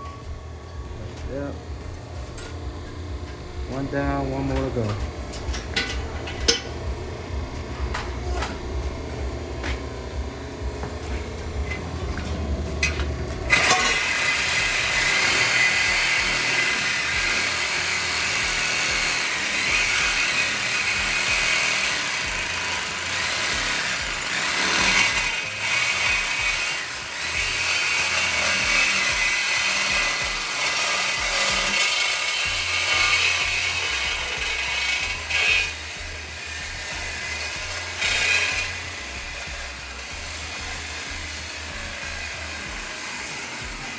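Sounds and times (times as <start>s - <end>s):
power tool cutting metal pipe: 0.0s - 43.9s
low rumble: 5.0s - 13.5s.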